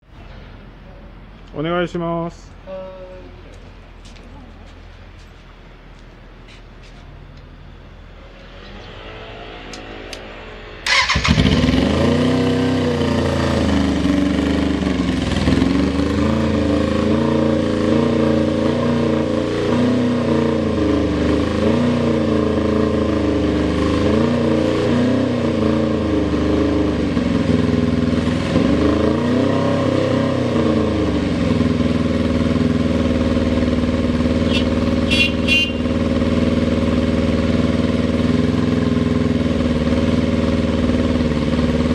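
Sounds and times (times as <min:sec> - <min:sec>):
motorcycle engine starting and idling: 0:10.8 - 0:19.4, 0:25.2 - 0:29.1, 0:30.4 - 0:41.9.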